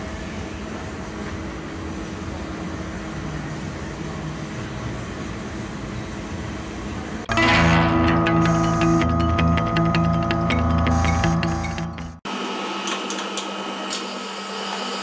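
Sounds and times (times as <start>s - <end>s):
machinery hum and hiss: 0.0s - 7.3s.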